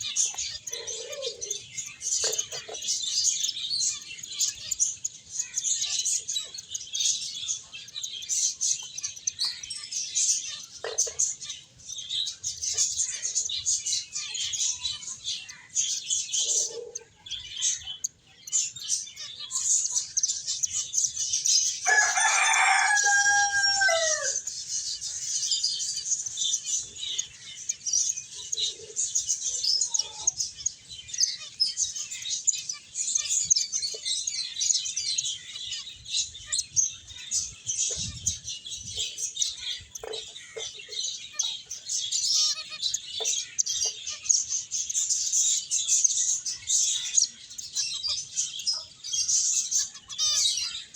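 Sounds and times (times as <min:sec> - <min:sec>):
finches chirping: 0:00.0 - 0:50.9
drawn-out falling bird call: 0:21.8 - 0:24.4.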